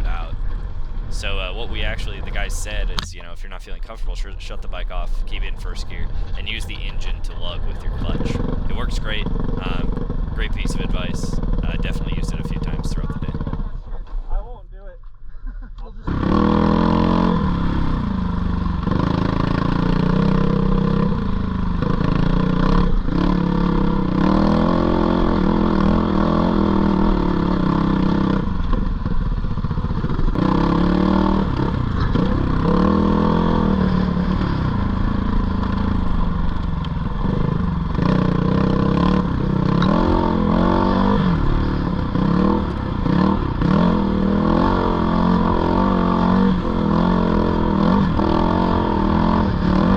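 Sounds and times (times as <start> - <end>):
dirt bike engine revving: 5.4 - 13.7, 16.1 - 28.8, 29.7 - 49.9.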